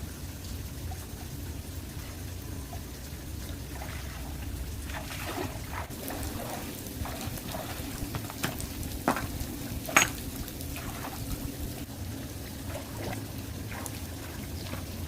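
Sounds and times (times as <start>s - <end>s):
water trickling: 0.0s - 15.0s
short splashes: 3.6s - 9.3s.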